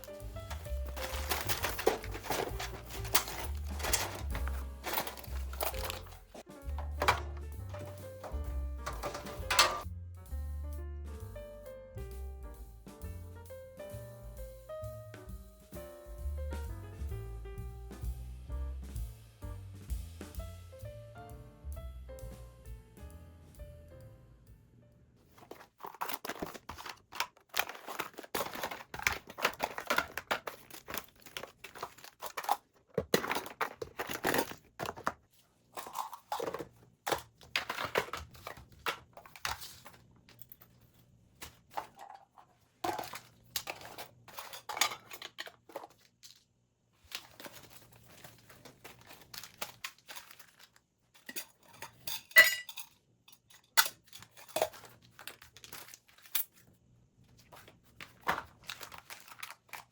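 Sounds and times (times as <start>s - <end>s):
rustling and crinkling: 0.0s - 9.9s, 25.2s - 52.8s, 53.4s - 59.9s.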